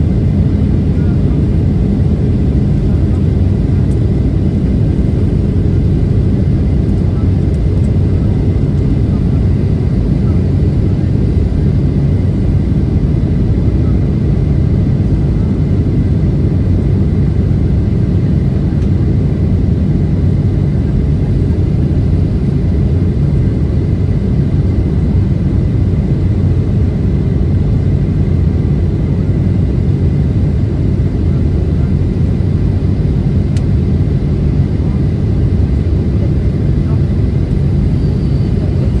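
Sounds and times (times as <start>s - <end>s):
airplane cabin rumble: 0.0s - 39.0s
faint steady whine: 36.2s - 39.0s.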